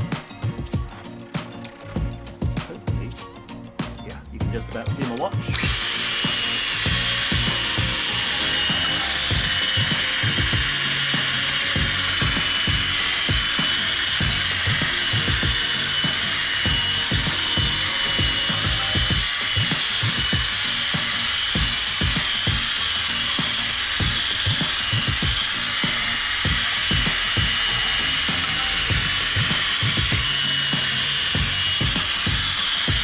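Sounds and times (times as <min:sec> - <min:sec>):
power drill motor whine: 0:05.4 - 0:33.0
sanding pad rubbing rattle: 0:05.5 - 0:33.0.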